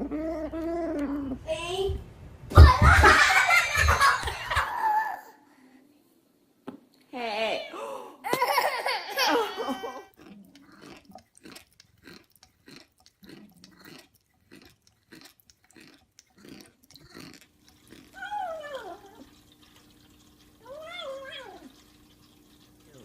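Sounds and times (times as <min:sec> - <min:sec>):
crunchy food being chewed: 0:09.9 - 0:20.5.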